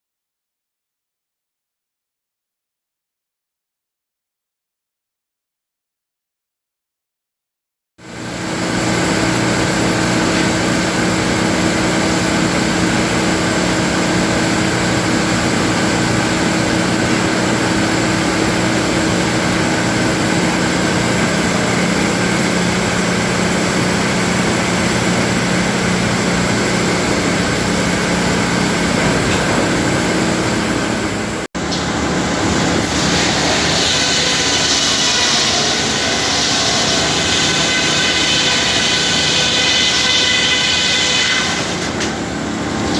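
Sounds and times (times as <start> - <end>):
sawmill machinery running: 8.0 - 42.9
steady hum: 8.7 - 38.1.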